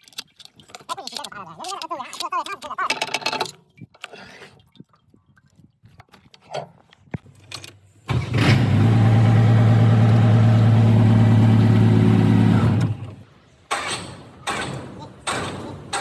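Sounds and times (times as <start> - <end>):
vehicle engine starting and idling: 8.1 - 13.9.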